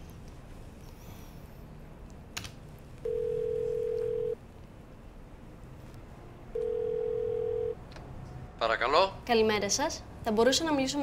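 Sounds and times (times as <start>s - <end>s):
telephone ringback tone: 3.0s - 4.4s, 6.6s - 7.8s.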